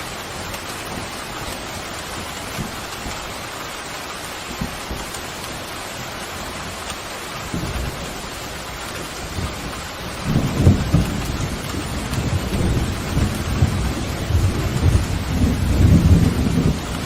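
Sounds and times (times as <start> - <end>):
pouring rain: 0.0 - 17.0
thunder rumble: 7.4 - 17.0.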